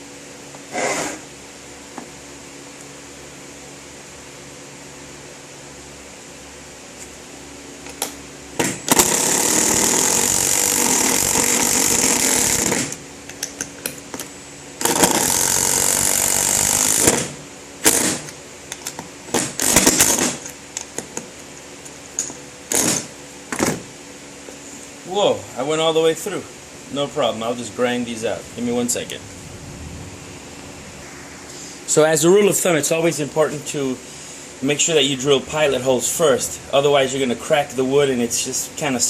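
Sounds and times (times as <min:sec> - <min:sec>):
power drill driving into wood: 0:08.6 - 0:13.0, 0:14.8 - 0:18.3, 0:19.3 - 0:20.4, 0:22.7 - 0:23.8.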